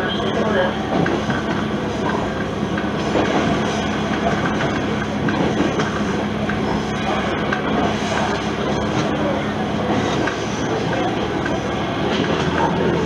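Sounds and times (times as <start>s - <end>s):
railcar engine hum: 0.0s - 13.0s
wheel-on-rail rumble: 0.0s - 13.0s.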